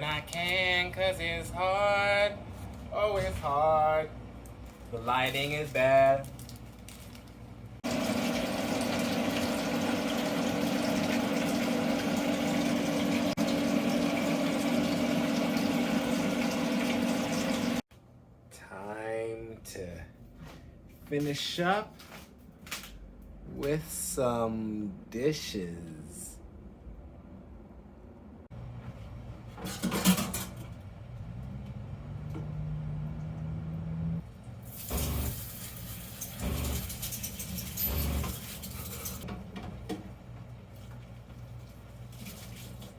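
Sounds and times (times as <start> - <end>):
tap water running into sink: 7.8 - 17.8, 34.7 - 39.3.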